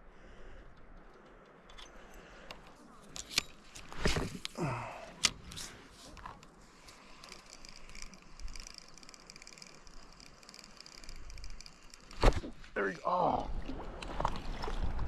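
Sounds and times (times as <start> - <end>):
fishing reel ticking: 6.8 - 12.1.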